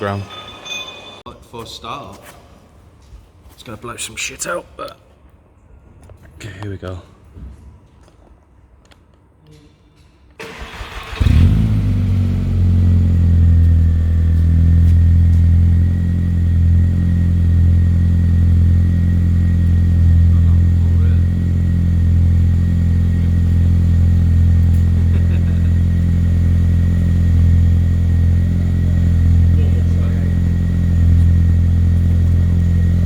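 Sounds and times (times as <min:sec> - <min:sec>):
car engine starting and idling: 0:10.4 - 0:33.0.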